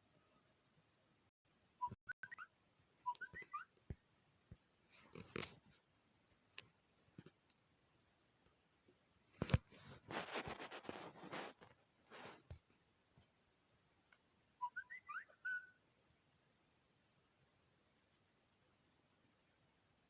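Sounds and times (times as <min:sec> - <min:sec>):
chirpy whistled notes: 0:01.8 - 0:03.7, 0:14.6 - 0:15.8.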